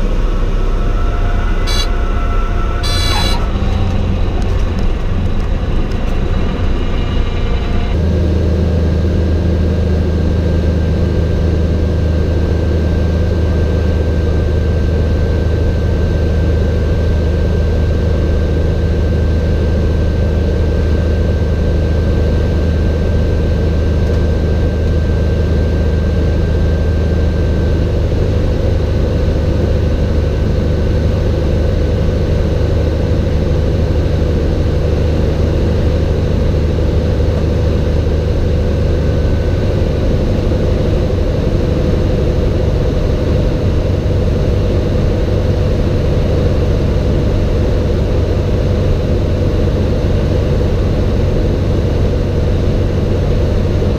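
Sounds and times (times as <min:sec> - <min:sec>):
high buzzing tone: 0:00.0 - 0:08.1
propeller plane engine droning: 0:00.0 - 0:53.9.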